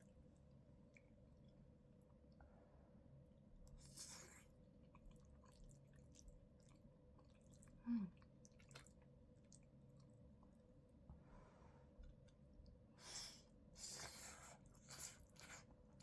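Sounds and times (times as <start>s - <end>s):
soft wet chewing sounds: 0.0s - 2.5s, 3.5s - 11.2s, 11.8s - 16.0s.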